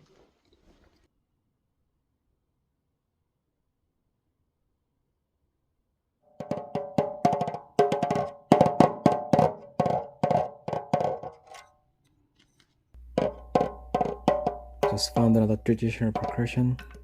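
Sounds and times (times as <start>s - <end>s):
wooden percussion knocks: 13.0s - 17.0s.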